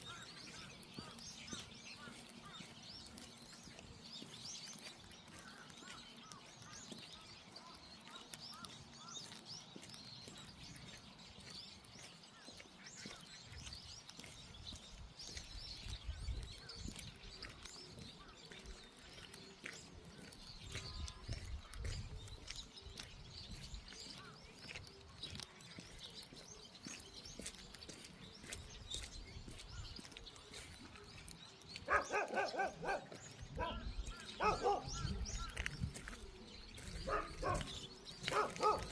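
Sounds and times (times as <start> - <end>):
dog barking: 31.9 - 33.8, 34.4 - 35.1, 37.1 - 37.7, 38.3 - 38.9.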